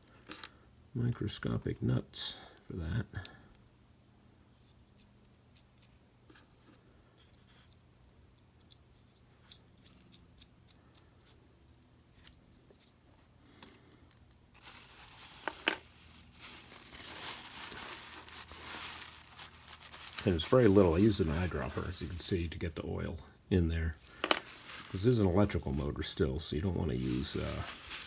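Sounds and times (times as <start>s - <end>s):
faint metallic clicks of tools: 4.6s - 12.9s
rustling: 14.5s - 23.3s, 23.9s - 28.0s.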